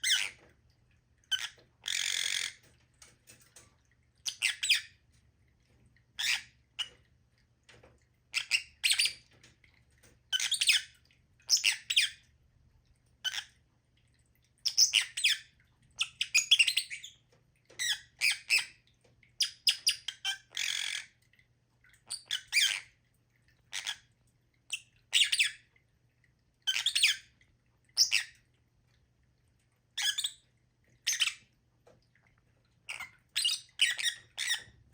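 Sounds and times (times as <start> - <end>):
lovebirds squawking and chirping: 1.3 - 2.7, 32.9 - 34.8.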